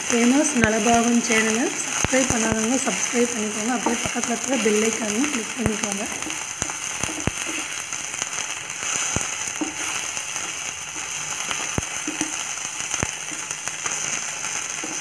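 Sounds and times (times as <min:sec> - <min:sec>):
vegetables sizzling in oil: 0:00.0 - 0:15.0
wooden spatula knocking on pan: 0:12.0 - 0:12.4.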